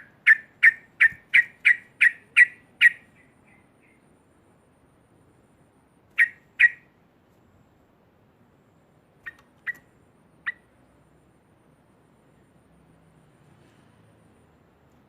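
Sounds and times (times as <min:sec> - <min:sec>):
bird call notes: 0:00.0 - 0:04.0, 0:06.1 - 0:06.9, 0:09.2 - 0:10.7.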